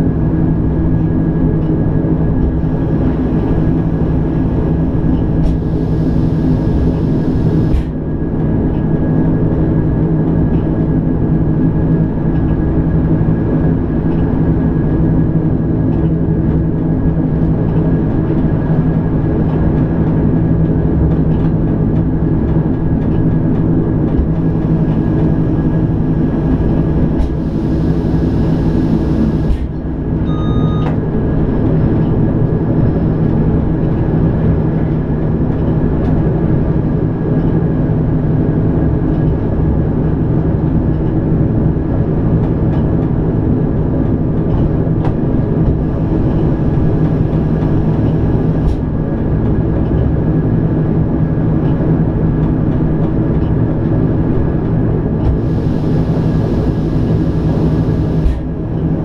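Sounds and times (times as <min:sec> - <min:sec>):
electric train drive hum: 0:00.0 - 0:59.0
train running rumble: 0:00.0 - 0:59.0
short beep: 0:30.2 - 0:31.0.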